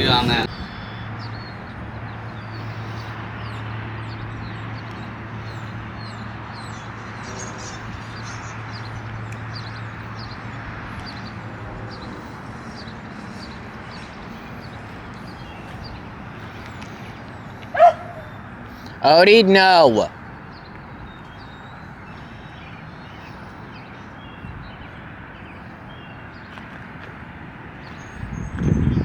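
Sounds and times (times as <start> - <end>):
small birds chirping: 0.0 - 27.0, 27.7 - 29.0
steady outdoor noise: 0.0 - 29.0.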